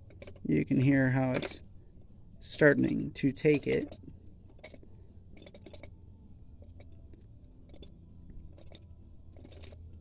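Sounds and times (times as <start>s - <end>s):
oil pump clicking: 2.5s - 6.0s.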